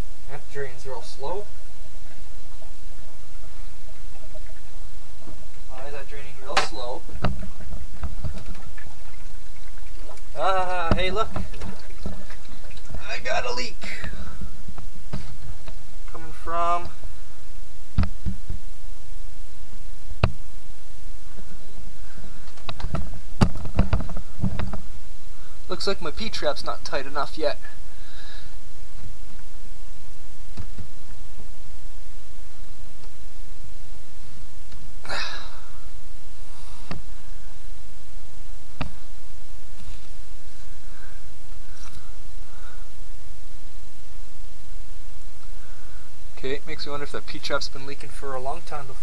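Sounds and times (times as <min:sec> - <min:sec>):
steady low hum: 0:00.0 - 0:49.0
breathy exhale: 0:27.8 - 0:28.6.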